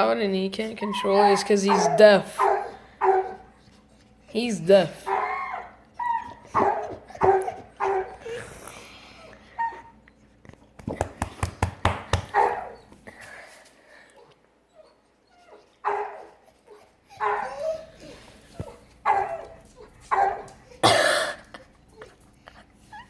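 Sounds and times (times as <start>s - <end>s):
dog barking loudly: 1.1s - 3.4s, 5.1s - 5.6s, 6.5s - 8.2s, 12.3s - 12.8s, 15.8s - 16.3s, 17.2s - 17.5s, 19.0s - 19.5s, 20.1s - 21.2s.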